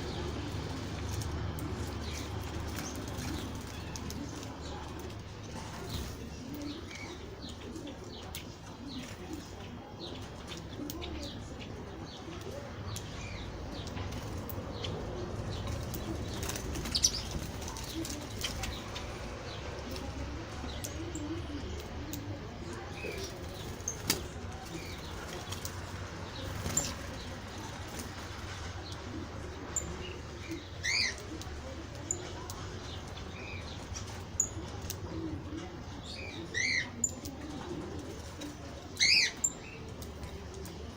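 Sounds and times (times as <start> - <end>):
birds cooing: 0.0 - 40.9
wings clicking: 13.8 - 21.2, 22.9 - 29.0.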